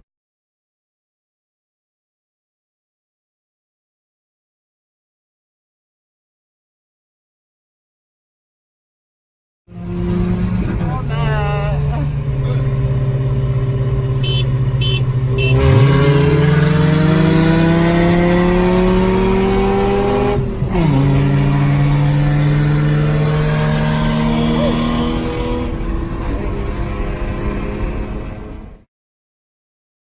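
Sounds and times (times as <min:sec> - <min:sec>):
car engine accelerating: 0:09.7 - 0:28.9.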